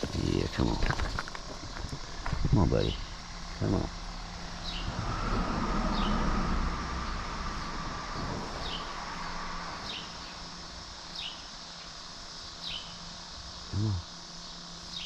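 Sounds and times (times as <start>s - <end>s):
rushing outdoor background: 0.0s - 15.0s
bird chirping: 12.6s - 13.0s.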